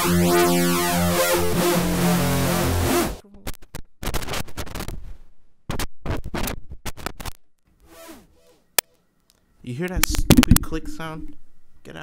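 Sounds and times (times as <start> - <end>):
digital crackling noise: 9.9 - 11.3.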